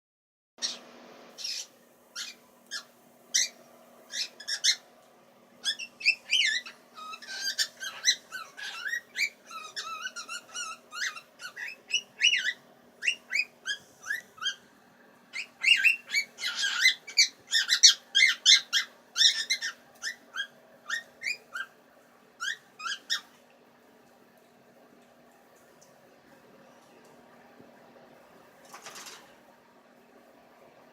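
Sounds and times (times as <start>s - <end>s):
bird chirping and warbling: 0.6s - 4.9s, 5.6s - 14.7s, 15.3s - 21.8s, 22.4s - 23.4s
faint steady hum: 0.6s - 30.9s.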